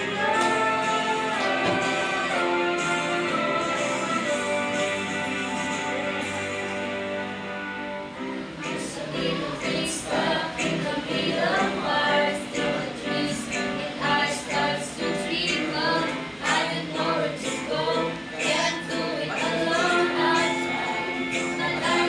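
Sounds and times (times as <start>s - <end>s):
person singing: 0.0s - 6.7s, 8.6s - 22.0s
musical accompaniment: 0.0s - 22.0s.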